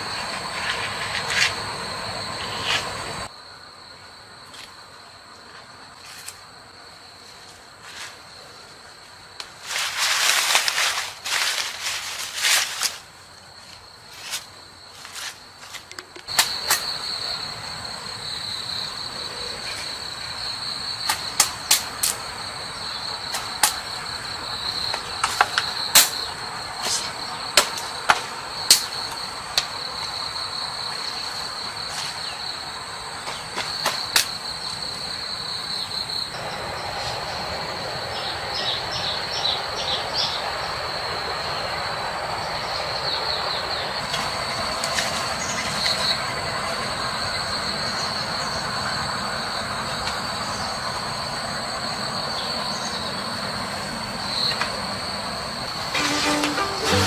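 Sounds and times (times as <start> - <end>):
high-pitched insect buzz: 55.7 - 57.0.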